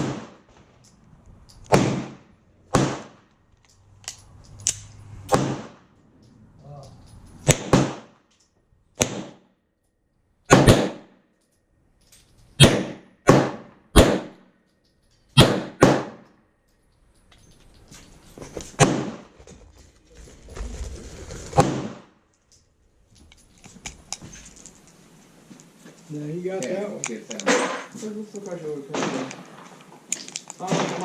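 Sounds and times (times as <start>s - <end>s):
gunshots with echo: 0.0s - 0.5s, 1.7s - 3.2s, 5.3s - 5.9s, 7.4s - 8.2s, 9.0s - 9.4s, 10.5s - 11.1s, 12.6s - 14.4s, 15.4s - 16.3s, 28.9s - 29.5s, 30.6s - 31.0s.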